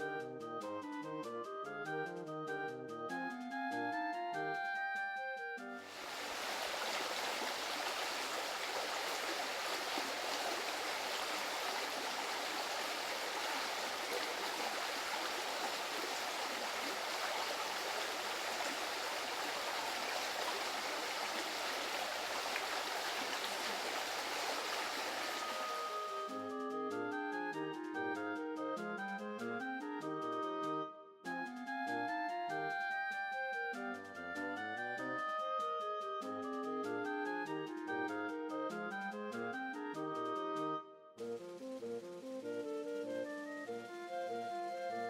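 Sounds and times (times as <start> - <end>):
stream running water: 5.8 - 26.5.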